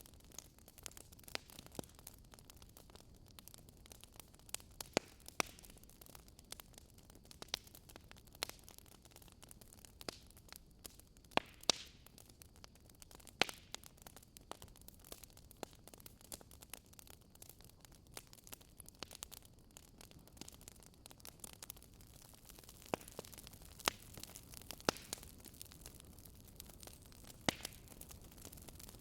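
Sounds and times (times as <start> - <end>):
wood fire popping and snapping: 0.0 - 29.0
soft fire hiss: 9.8 - 29.0.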